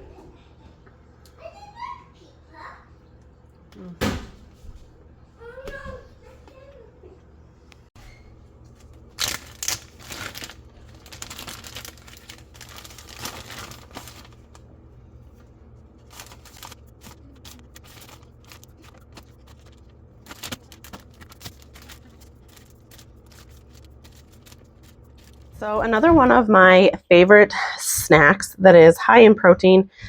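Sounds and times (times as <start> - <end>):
steady low hum: 2.1 - 30.0
crinkling and rustling: 8.1 - 26.4.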